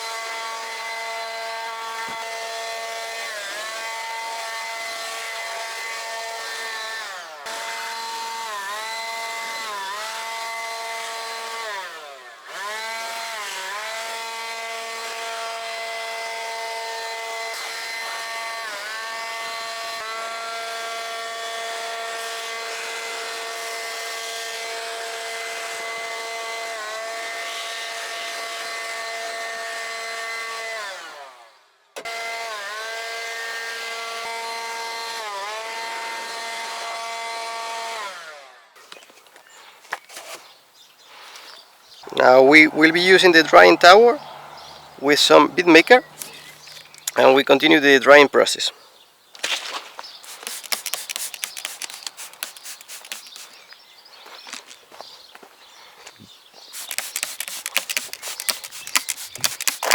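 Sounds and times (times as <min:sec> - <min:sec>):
leaf blower whining: 0:00.0 - 0:31.4, 0:32.0 - 0:39.5, 0:50.2 - 0:53.7, 0:56.6 - 0:59.9.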